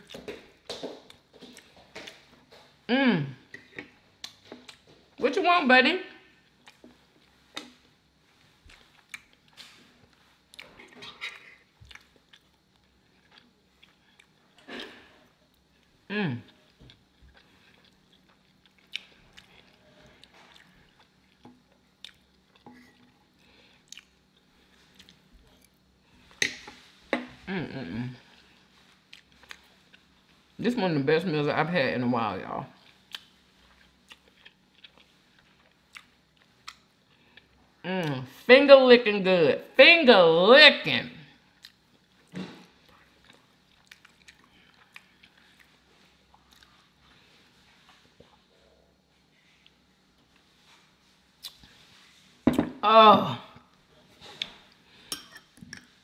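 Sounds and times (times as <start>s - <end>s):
person humming: 2.9s - 3.4s
person chewing wetly: 3.6s - 5.0s, 6.3s - 25.9s, 28.3s - 30.4s, 32.8s - 37.6s, 41.5s - 47.2s, 51.4s - 51.8s.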